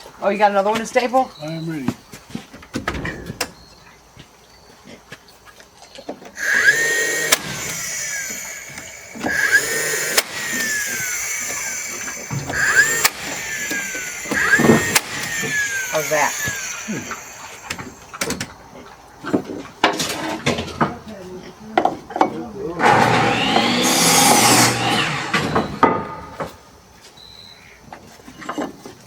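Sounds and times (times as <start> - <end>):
stapler firing crack: 6.4 - 18.4
power stapler motor whining: 6.4 - 18.6, 22.8 - 25.8.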